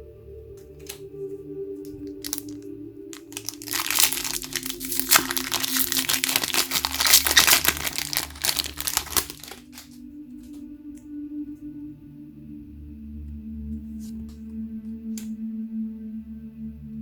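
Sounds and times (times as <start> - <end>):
soft ambient music: 0.0 - 17.0
card packaging crinkling: 2.1 - 2.6, 3.2 - 10.0.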